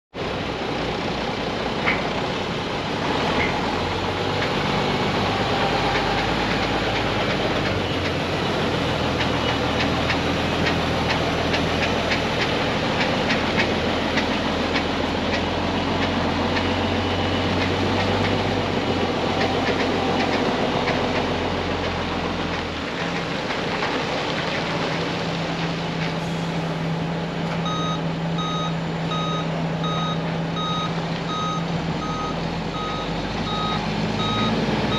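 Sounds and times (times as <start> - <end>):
diesel truck engine running: 0.2 - 34.9
reversing alarm beeping: 13.8 - 21.2, 27.6 - 34.9.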